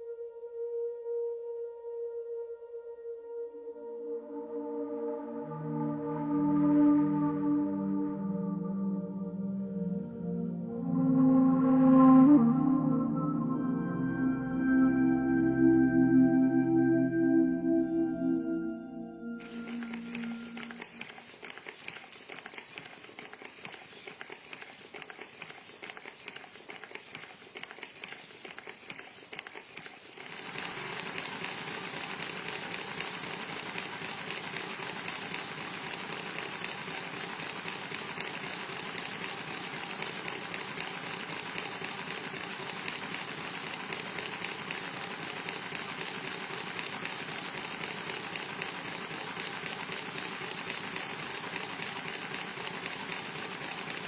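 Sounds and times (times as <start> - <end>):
faint machine whine: 0.0 - 22.1.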